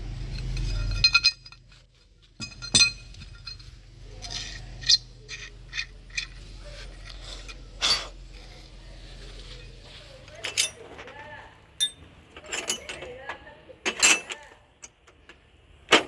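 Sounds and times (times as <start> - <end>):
low hum: 0.0 - 10.8
small hard objects clinking: 0.2 - 8.2.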